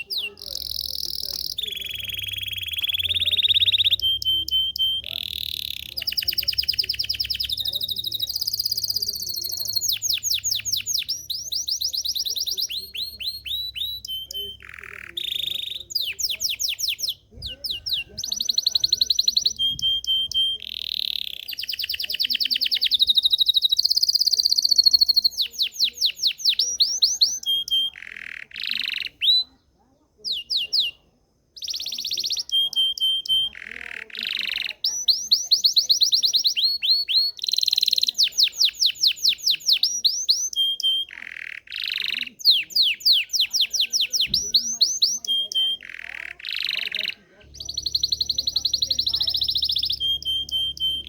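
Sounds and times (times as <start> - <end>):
canary singing trills: 0.0 - 51.0.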